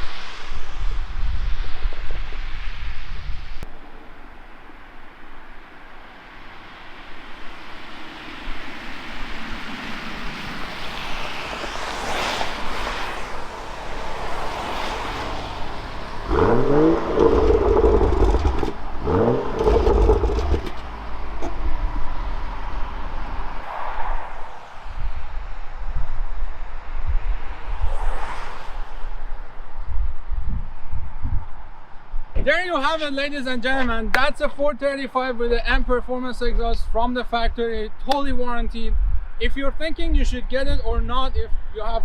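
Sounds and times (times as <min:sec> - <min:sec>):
car engine accelerating: 0:14.1 - 0:23.6.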